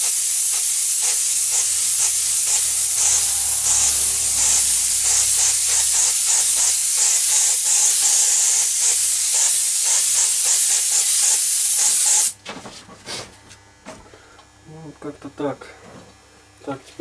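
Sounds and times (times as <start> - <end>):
paint spray gun hissing: 0.0 - 12.4.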